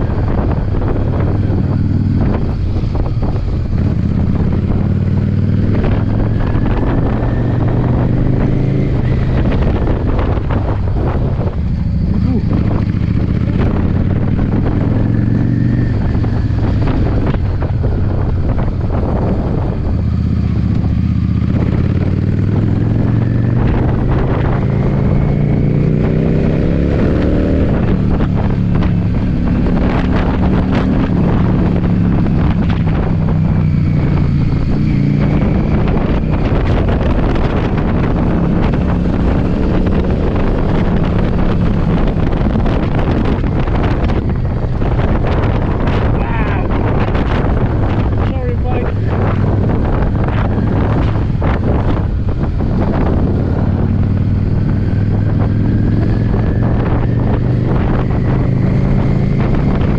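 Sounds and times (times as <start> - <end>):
motorcycle engine running: 0.0 - 59.9
wind buffeting microphone: 0.0 - 59.9.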